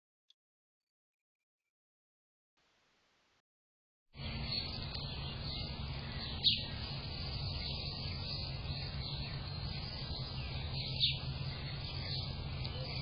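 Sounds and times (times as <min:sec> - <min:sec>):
downward sweeping bird calls: 0:04.2 - 0:13.0
faint outdoor background noise: 0:04.2 - 0:13.0
steady low hum: 0:04.2 - 0:13.0.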